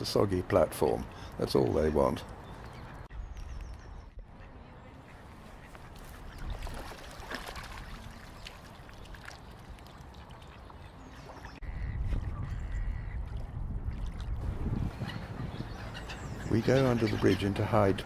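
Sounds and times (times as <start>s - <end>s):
lakeside ambience: 0.0s - 18.0s
ducks quacking: 15.0s - 18.0s.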